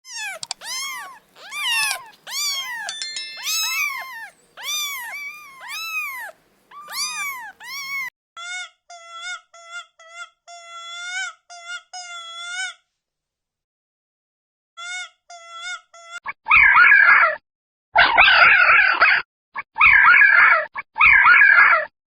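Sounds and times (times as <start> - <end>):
cat meowing: 0.1 - 8.1
short animal calls: 3.5 - 8.1.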